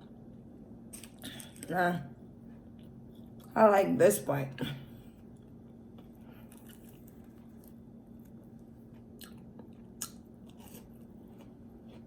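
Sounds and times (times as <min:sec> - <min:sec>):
steady low hum: 0:00.0 - 0:12.0
chewing fried food: 0:05.2 - 0:12.0.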